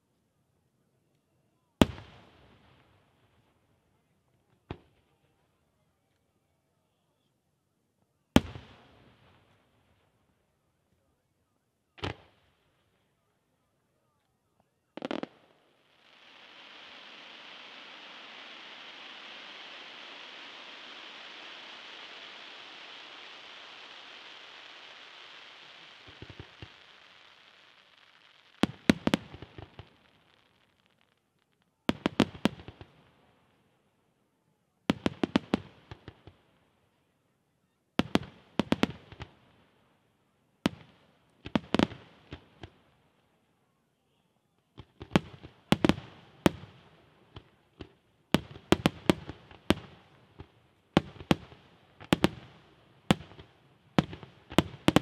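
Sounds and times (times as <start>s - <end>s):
firework hiss: 15.0s - 31.3s, 50.9s - 55.0s
firework shells bursting: 15.0s - 31.3s, 48.4s - 55.0s.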